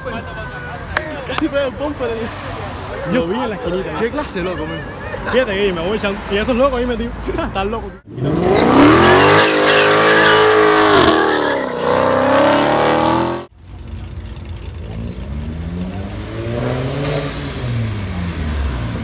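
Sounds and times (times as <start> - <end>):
car engine revving hard: 8.1 - 13.5, 15.2 - 19.0
car engine accelerating: 8.1 - 19.0.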